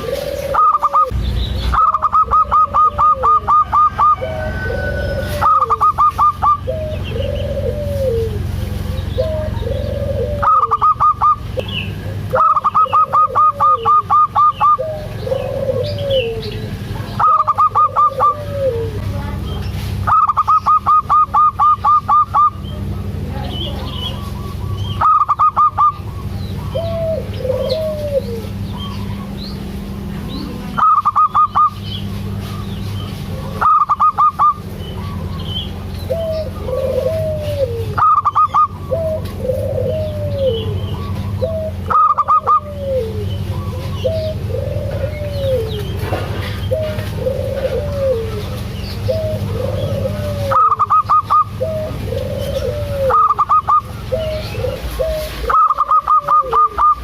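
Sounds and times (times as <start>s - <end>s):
dove staccato notes: 0.0s - 18.8s
dove cooing: 0.0s - 57.0s
steady low hum: 0.0s - 57.0s.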